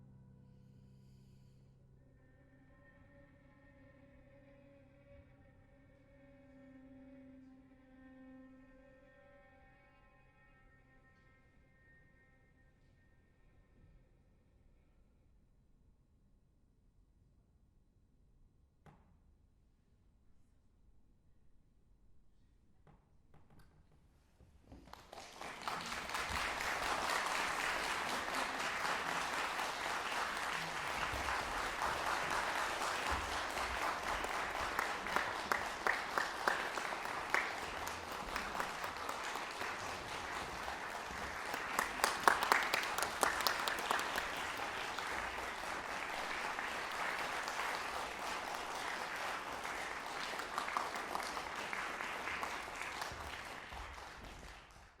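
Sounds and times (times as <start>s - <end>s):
audience applauding: 24.7s - 55.0s.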